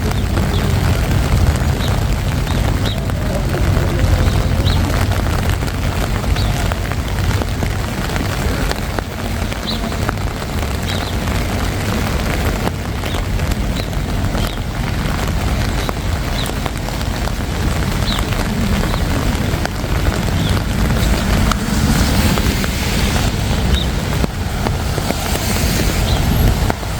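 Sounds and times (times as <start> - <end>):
traffic rumble: 0.0 - 26.9
wind: 0.0 - 26.9
wet hiss: 24.9 - 26.7.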